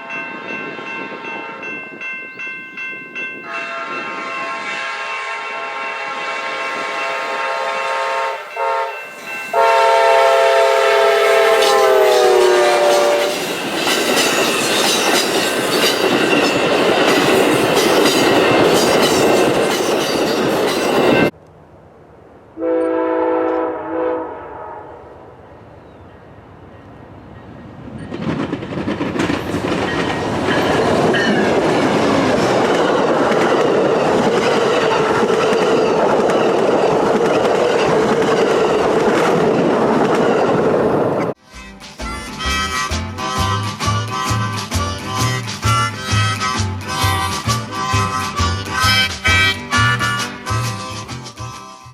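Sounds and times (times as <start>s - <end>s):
passing train rumble and clatter: 0.0s - 51.9s
train horn: 3.4s - 13.6s, 22.6s - 25.3s.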